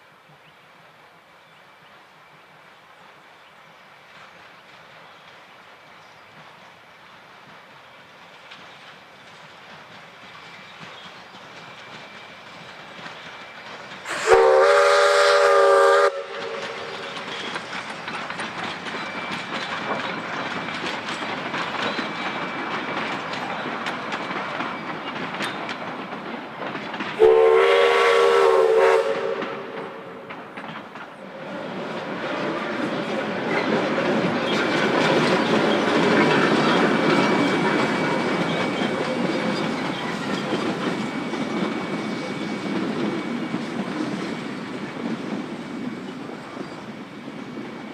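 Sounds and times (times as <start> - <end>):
wheels clattering on rails: 4.2 - 14.4, 16.3 - 27.4, 29.0 - 47.9
steam locomotive whistle blasts: 14.0 - 17.5, 27.2 - 30.3.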